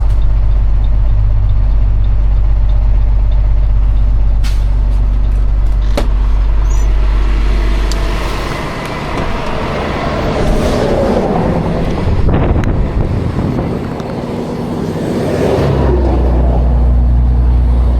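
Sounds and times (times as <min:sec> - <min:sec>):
truck engine idling: 0:00.0 - 0:10.4, 0:11.1 - 0:17.9
wind noise on microphone: 0:09.1 - 0:17.9.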